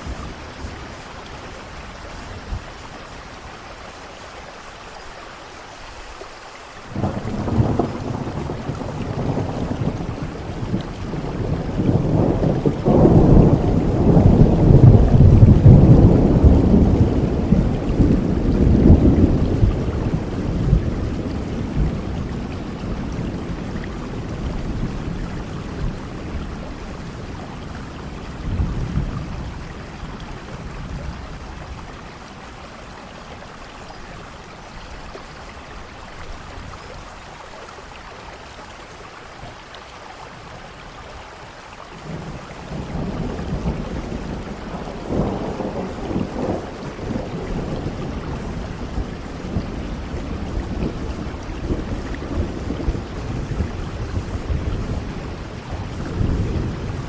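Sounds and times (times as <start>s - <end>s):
steady rainfall: 0.0s - 57.0s
thunder rumbling: 6.9s - 33.5s, 42.0s - 57.0s.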